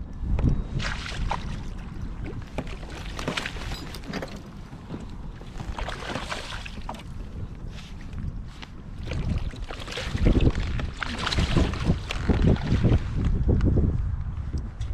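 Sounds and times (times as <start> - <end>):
wind rumbling on microphone: 0.0 - 14.9
water splashing near a kayak: 0.4 - 13.4.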